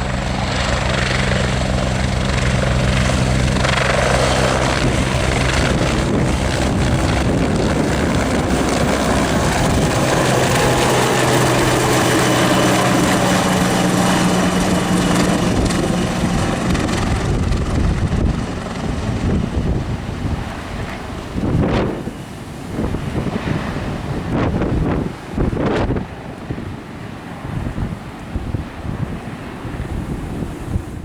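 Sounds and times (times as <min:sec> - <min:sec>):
helicopter engine and rotor: 0:00.0 - 0:23.8
wind buffeting microphone: 0:00.0 - 0:31.0.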